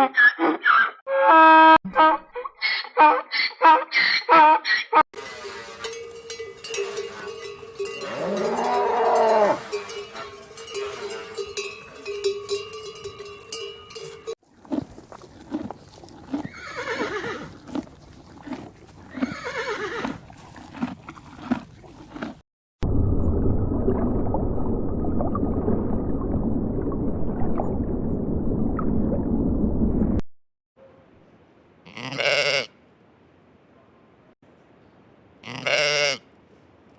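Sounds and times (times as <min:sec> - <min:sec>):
farm animal call: 0:00.0 - 0:11.7, 0:31.8 - 0:32.8, 0:35.4 - 0:36.2
dense low rumbling noise: 0:22.8 - 0:30.2.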